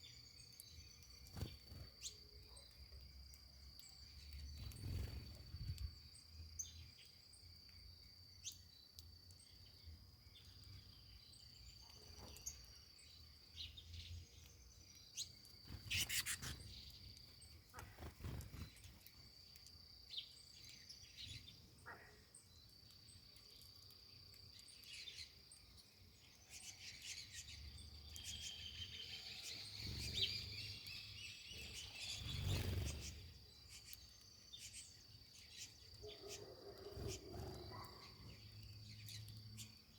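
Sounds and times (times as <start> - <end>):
small birds chirping: 0.0 - 39.9
high insect trill: 15.1 - 21.4.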